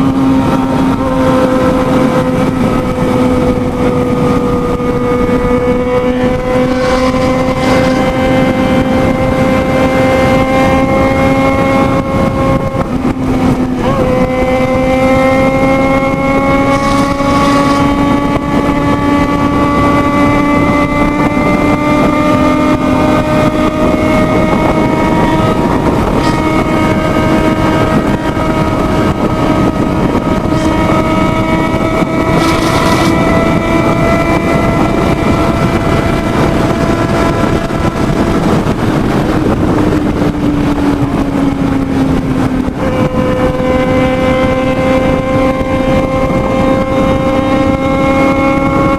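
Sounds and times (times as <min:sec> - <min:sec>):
motorcycle engine at high revs: 0:00.0 - 0:48.9
wind rushing over microphone: 0:00.0 - 0:48.9.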